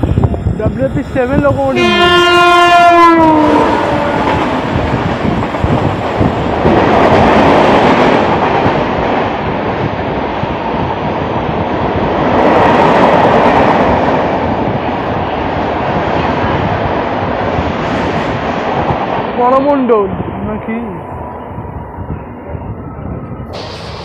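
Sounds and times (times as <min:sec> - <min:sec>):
train rumble and wheel clatter: 0:00.0 - 0:24.0
locomotive horn dropping in pitch: 0:01.8 - 0:04.5.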